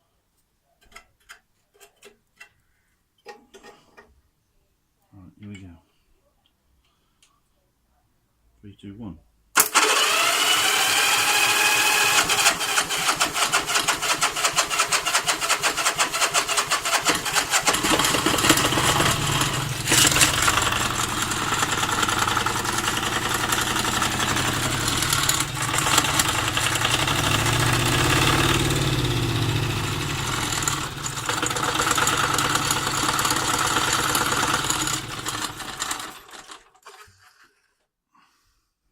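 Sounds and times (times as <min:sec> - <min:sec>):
diesel engine starter cranking: 0:09.6 - 0:37.0
diesel engine running: 0:09.9 - 0:36.2.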